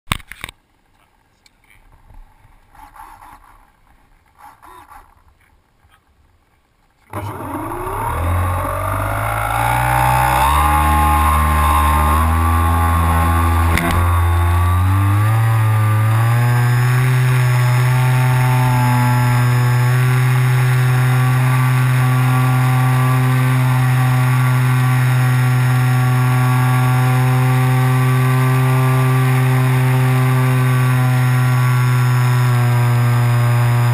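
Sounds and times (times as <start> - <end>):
model glider motor and propeller: 7.1 - 33.9
sharp click: 13.7 - 14.2.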